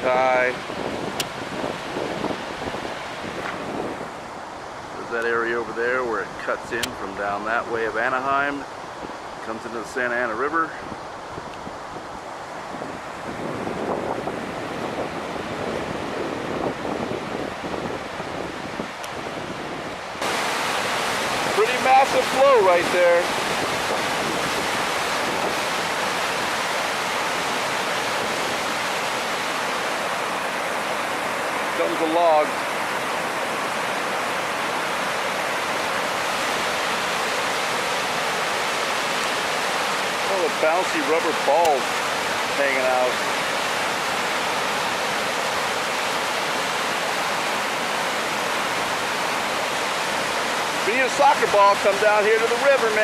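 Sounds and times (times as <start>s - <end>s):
river water rushing: 0.0s - 53.0s.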